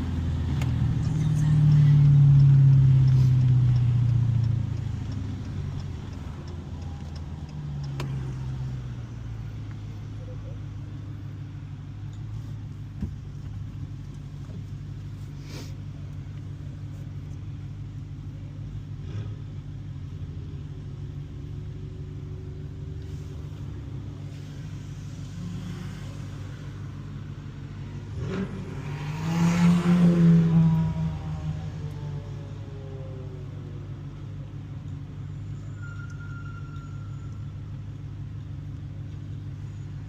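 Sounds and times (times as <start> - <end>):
car engine droning and revving: 0.0 - 40.0
faint clicks: 1.5 - 8.8.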